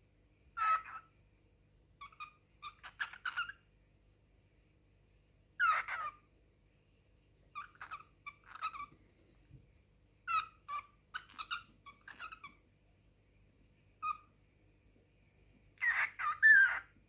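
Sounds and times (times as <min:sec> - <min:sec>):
cockatiel chirping and warbling: 0:00.6 - 0:01.2, 0:02.0 - 0:03.7, 0:05.6 - 0:06.3, 0:07.5 - 0:09.0, 0:10.2 - 0:12.6, 0:14.0 - 0:14.3, 0:15.8 - 0:17.0.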